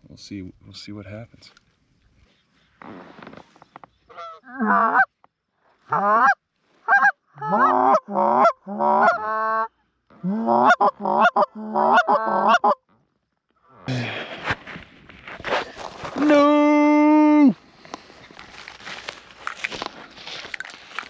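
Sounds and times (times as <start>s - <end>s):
goose call honks and clucks: 4.1s - 5.2s, 5.9s - 12.9s.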